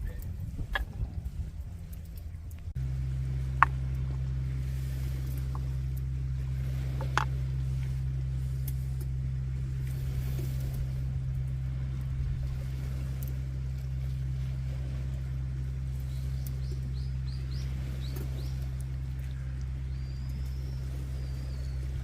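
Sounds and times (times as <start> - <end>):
campfire crackling: 0.0 - 22.0
steady low hum: 0.0 - 22.0
small bird chirping: 16.0 - 22.0.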